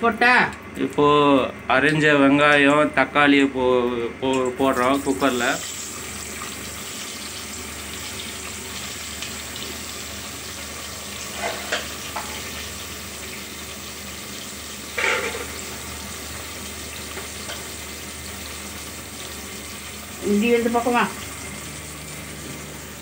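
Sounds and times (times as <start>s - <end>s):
onions sizzling in hot oil: 4.6s - 23.0s.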